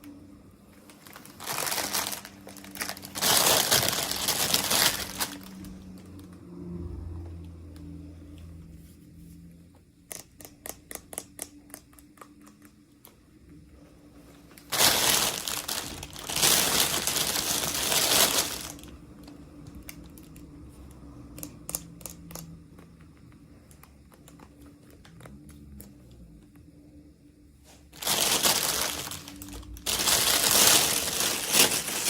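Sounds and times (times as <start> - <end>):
packaging crinkling: 0.8 - 6.1, 14.6 - 20.4, 28.0 - 32.0
small clicks and taps: 10.0 - 13.2.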